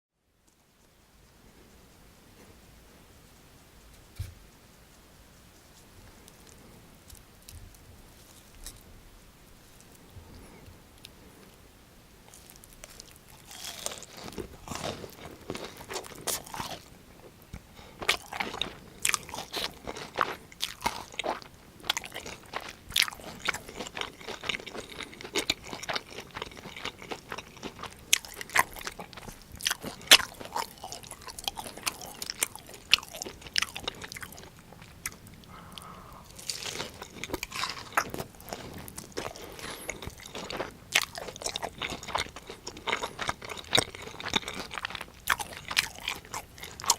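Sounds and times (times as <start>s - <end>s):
crunchy chewing: 0.5s - 46.9s.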